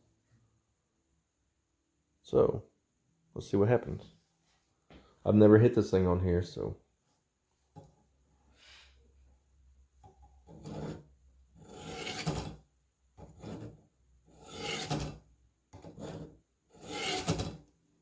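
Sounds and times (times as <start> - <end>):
knife scraping on sharpener: 10.5 - 12.6, 13.2 - 15.2, 15.8 - 17.6.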